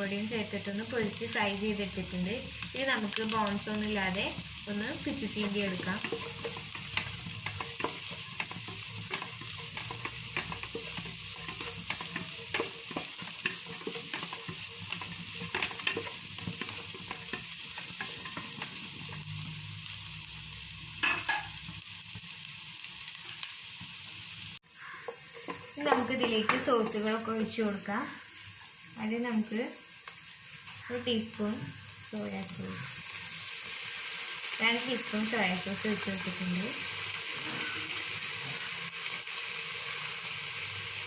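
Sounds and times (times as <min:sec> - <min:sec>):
vegetables sizzling in a frying pan: 0:00.0 - 0:41.0
spatula scraping a pan: 0:04.3 - 0:19.3, 0:24.8 - 0:26.8, 0:37.2 - 0:38.8.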